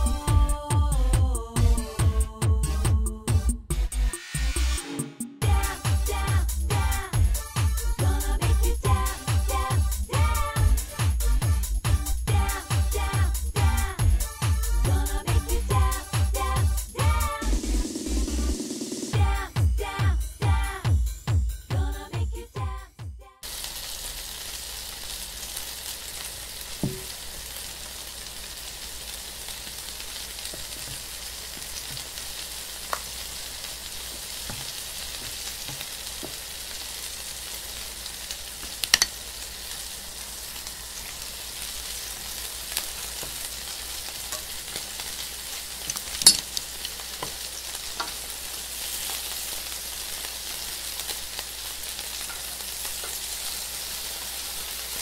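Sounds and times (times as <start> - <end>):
patties sizzling in oil: 4.4 - 19.2, 23.4 - 55.0
oil popping: 26.8 - 27.2, 38.7 - 39.1.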